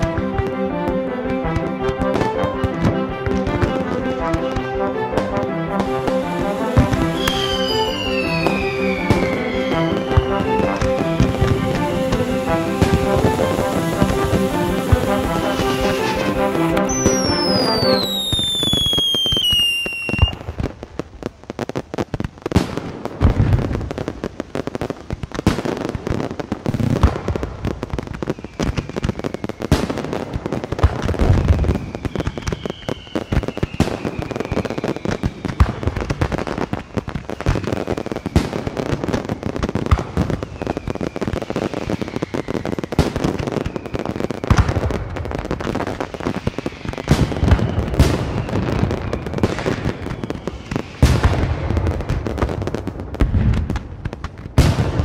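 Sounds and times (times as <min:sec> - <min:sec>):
firecrackers crackling: 0:00.0 - 0:55.0
deep firework booms: 0:01.5 - 0:24.5, 0:44.4 - 0:55.0
falling firework whistles: 0:05.8 - 0:20.5, 0:28.0 - 0:51.7.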